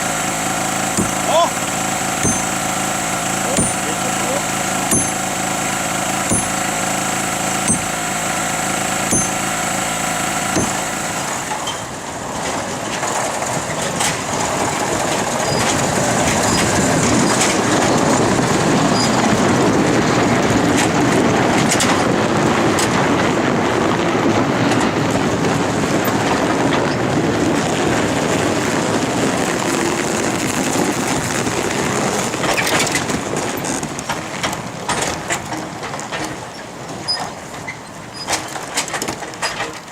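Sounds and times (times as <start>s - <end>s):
heavy machine engine idling: 0.0s - 12.4s
loud rough engine rumble: 0.0s - 39.9s.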